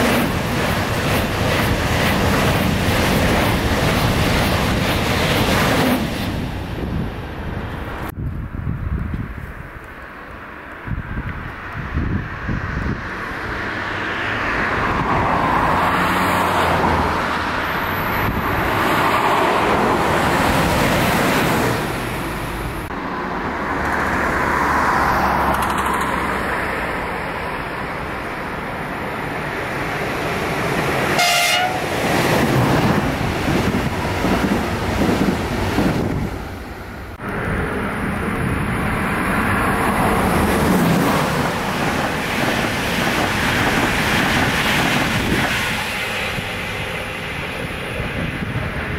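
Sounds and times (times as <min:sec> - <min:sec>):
train wheel and rail noise: 0:00.0 - 0:48.9
wavering train horn: 0:31.1 - 0:32.0.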